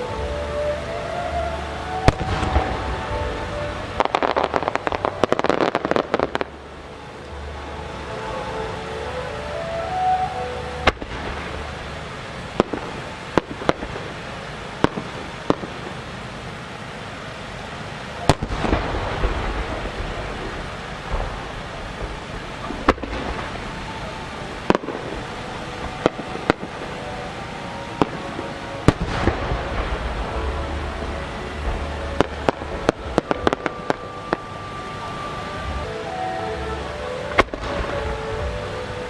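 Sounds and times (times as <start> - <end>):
spreading echo: 0.0 - 39.0
firework shells booming: 10.8 - 16.3, 18.3 - 36.4.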